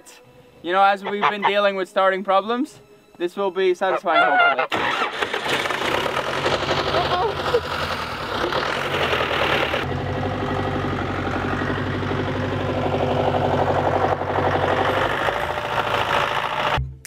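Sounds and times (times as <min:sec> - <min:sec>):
tractor engine idling: 0:04.7 - 0:16.8.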